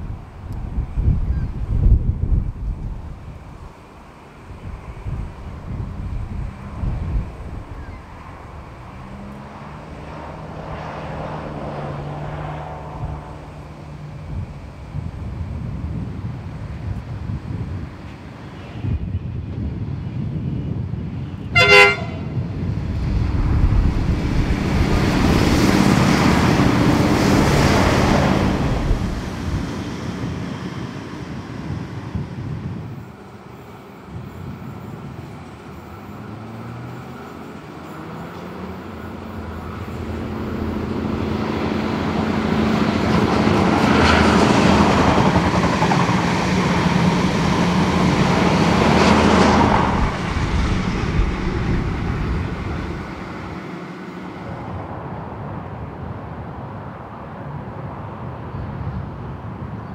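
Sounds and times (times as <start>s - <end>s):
diesel railcar passing: 0.0s - 59.9s
diesel train approaching: 0.0s - 59.9s
train horn toot: 21.4s - 22.4s.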